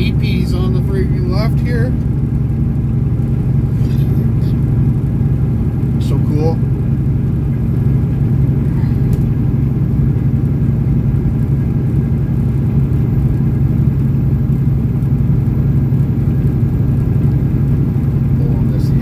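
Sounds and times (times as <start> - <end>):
road noise: 0.0 - 19.0
truck diesel engine drone: 0.0 - 19.0.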